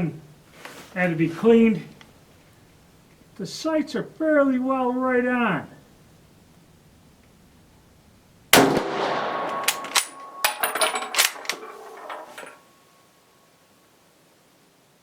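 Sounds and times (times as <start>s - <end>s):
rifle shot with echo: 8.6s - 10.5s
rifle bolt clacking: 9.4s - 12.5s.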